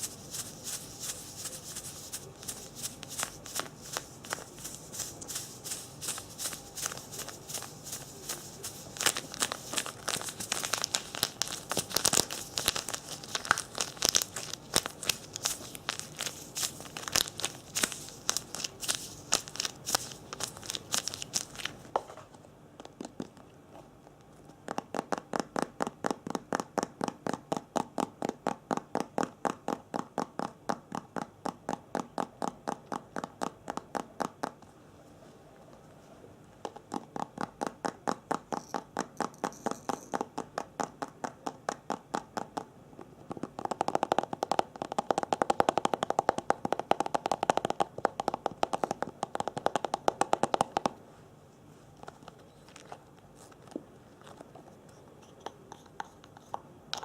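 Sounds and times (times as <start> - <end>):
crinkling and crackling: 0.0 - 24.6, 51.7 - 57.0.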